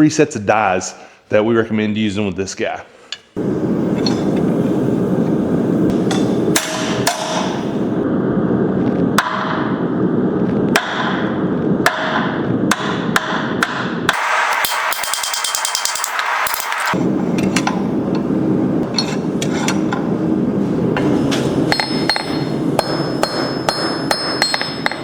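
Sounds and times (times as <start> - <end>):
hammer striking steel: 4.0 - 4.4, 5.9 - 7.9, 11.8 - 20.1, 21.0 - 25.0.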